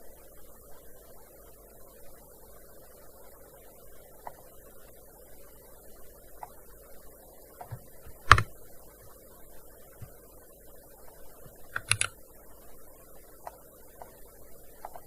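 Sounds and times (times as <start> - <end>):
keyboard keystrokes: 7.6 - 8.5, 11.5 - 12.2.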